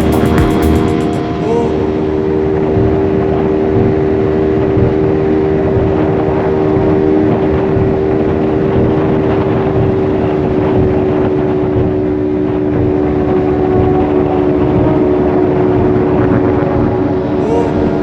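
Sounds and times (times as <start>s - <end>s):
motorcycle engine humming: 0.0s - 3.0s.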